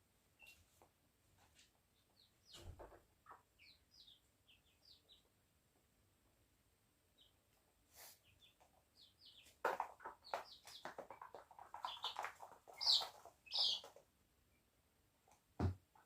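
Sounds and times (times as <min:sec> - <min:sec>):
chicks cheeping: 0:01.9 - 0:05.4, 0:07.1 - 0:14.0.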